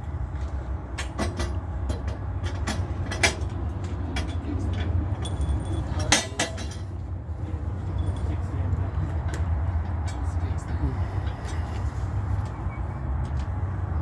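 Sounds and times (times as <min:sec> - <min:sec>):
sharp clanks and knocks: 0:00.0 - 0:07.1
vehicle engine rumbling: 0:00.0 - 0:14.0.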